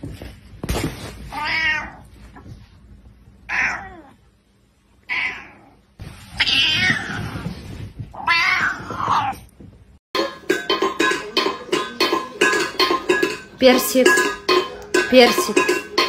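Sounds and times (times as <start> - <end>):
cat meowing angrily: 1.3 - 2.0, 3.5 - 4.2, 5.1 - 7.4, 8.1 - 9.4.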